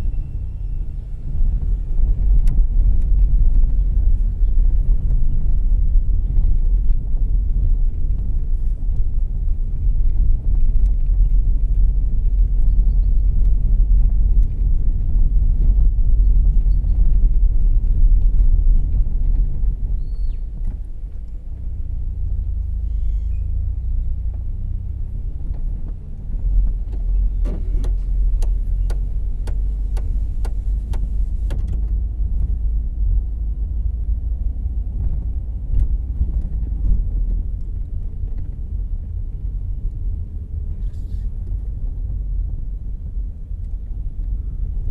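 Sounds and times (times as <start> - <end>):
car engine and road rumble: 0.0 - 44.9
turn signal ticking: 25.3 - 32.6.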